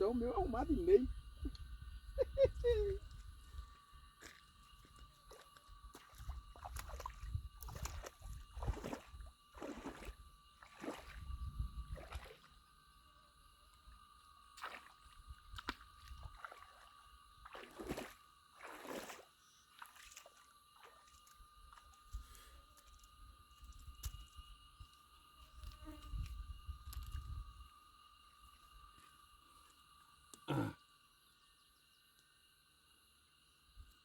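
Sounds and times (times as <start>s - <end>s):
water sloshing and splashing: 4.2s - 12.6s, 14.5s - 22.4s.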